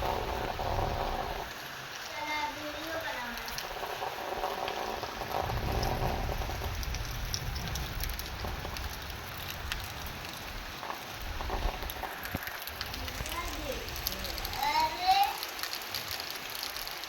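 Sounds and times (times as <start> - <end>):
low rumble: 0.0 - 1.5, 5.0 - 14.6
heavy rain falling: 0.0 - 17.0.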